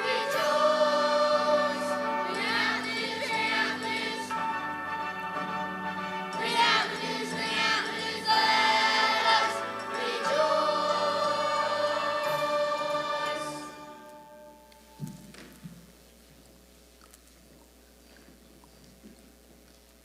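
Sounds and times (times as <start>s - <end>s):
choir singing: 0.0s - 14.7s
musical accompaniment: 0.0s - 15.4s.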